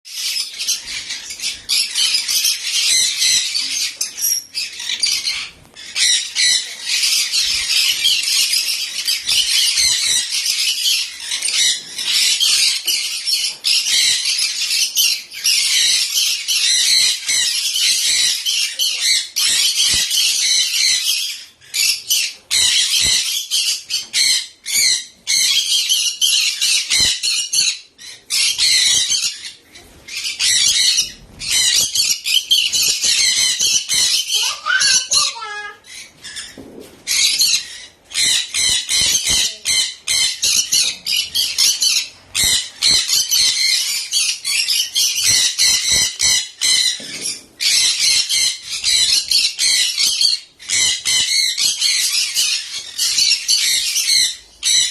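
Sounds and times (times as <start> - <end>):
parrot squawking: 30.1 - 36.6.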